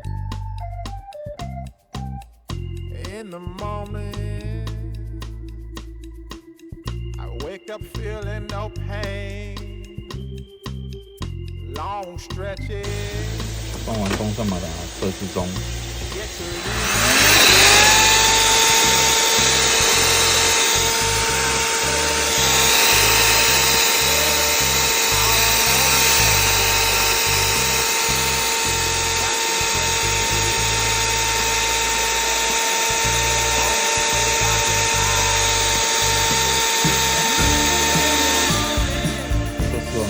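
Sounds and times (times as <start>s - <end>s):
vacuum motor whining: 12.9s - 39.6s.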